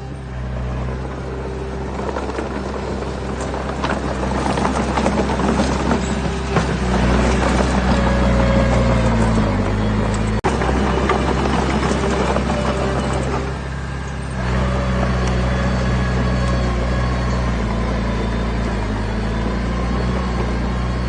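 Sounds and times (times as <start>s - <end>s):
diesel engine humming: 0.0s - 21.0s
machine rattling and clanking: 1.8s - 14.3s.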